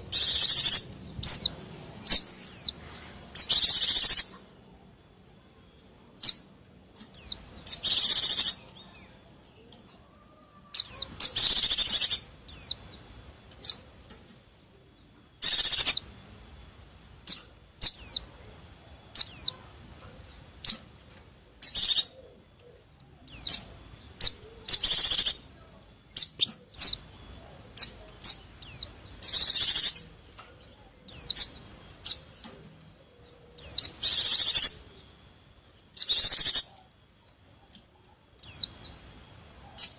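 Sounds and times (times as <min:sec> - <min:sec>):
bird chattering: 0:00.0 - 0:04.5, 0:07.1 - 0:09.5, 0:10.6 - 0:13.0, 0:15.4 - 0:16.1, 0:17.2 - 0:22.4, 0:23.3 - 0:25.6, 0:26.2 - 0:30.2, 0:31.0 - 0:35.0, 0:35.9 - 0:39.9.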